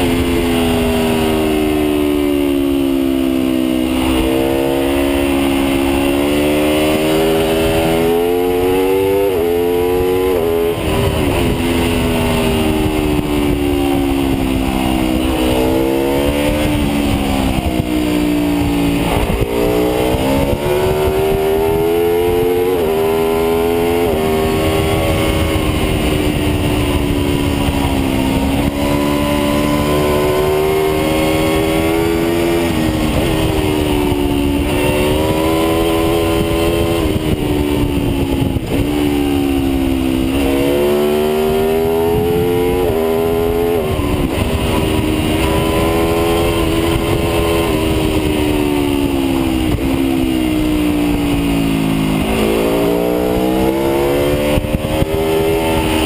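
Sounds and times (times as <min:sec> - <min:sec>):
motorcycle engine at speed: 0:00.0 - 0:56.0
wind noise: 0:00.0 - 0:56.0.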